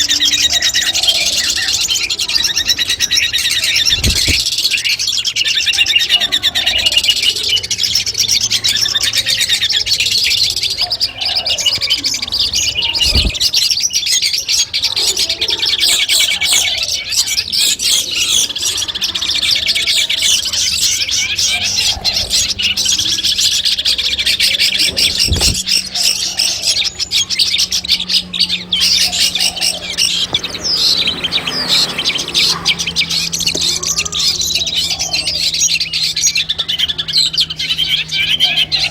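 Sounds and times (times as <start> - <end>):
bird chattering song: 0.0 - 38.9
soft thumps: 3.9 - 4.5.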